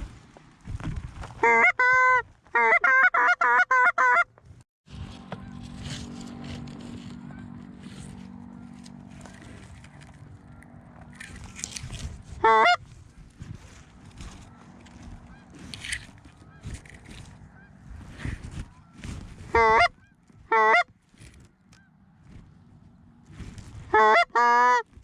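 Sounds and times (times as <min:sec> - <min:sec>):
faint goose honking: 0:01.4 - 0:04.3, 0:05.0 - 0:25.0
goose call honks: 0:01.4 - 0:04.3, 0:05.2 - 0:21.0, 0:23.8 - 0:25.0.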